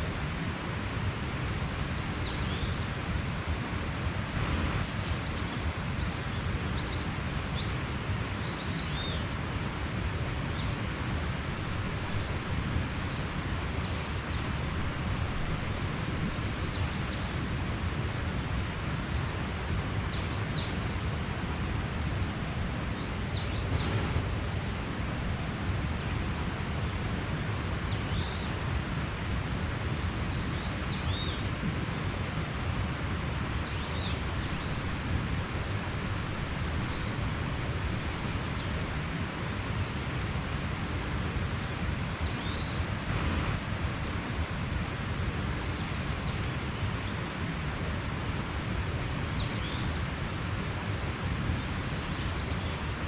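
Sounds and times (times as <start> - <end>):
stream rushing water: 0.0 - 53.0.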